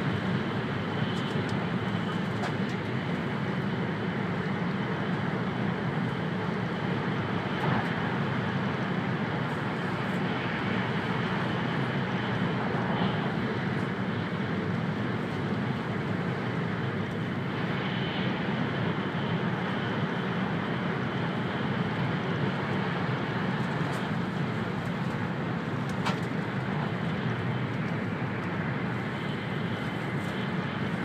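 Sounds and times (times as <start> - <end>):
train cabin noise: 22.5 - 31.0.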